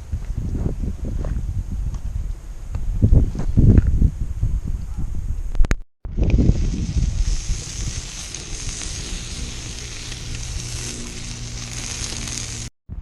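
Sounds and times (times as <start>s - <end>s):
sausages sizzling and crackling: 6.1s - 12.7s.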